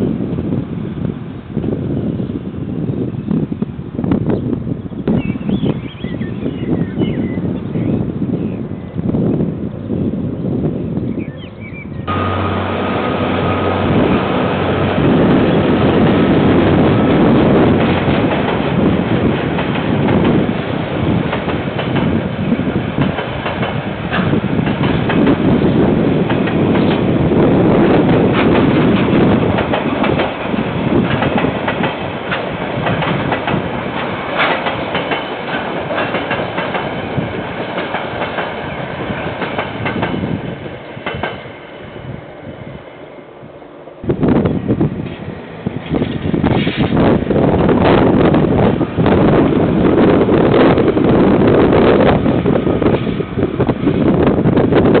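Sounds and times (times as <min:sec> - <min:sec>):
train wheels clickety-clack: 0:12.1 - 0:41.6, 0:44.9 - 0:55.0.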